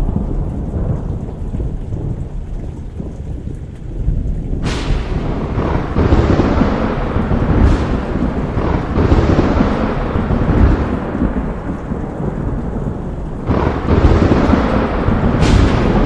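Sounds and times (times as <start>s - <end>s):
loud thunderclap: 0.0s - 16.0s
steady rain: 0.0s - 16.0s
thunder rumbling: 0.0s - 16.0s.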